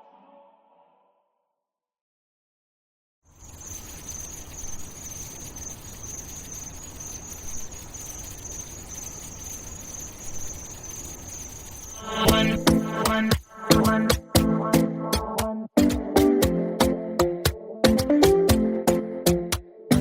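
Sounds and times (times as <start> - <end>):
insects chirring: 3.3 - 14.3
music with plucked riff: 13.7 - 20.0.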